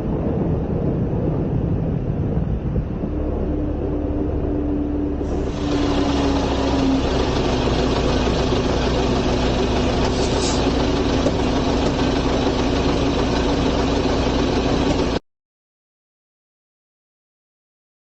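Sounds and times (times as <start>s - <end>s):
road noise: 1.3s - 15.2s
vehicle engine running: 2.6s - 15.2s
brief high hiss: 10.1s - 10.7s.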